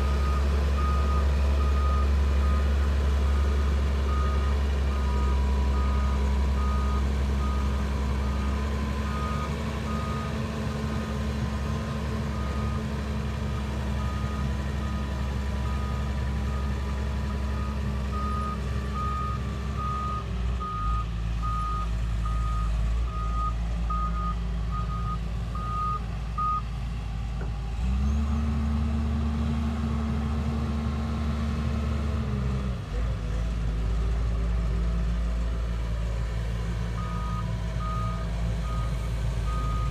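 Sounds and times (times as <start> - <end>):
diesel engine running: 0.0 - 39.9
reversing alarm beeping: 37.0 - 39.9.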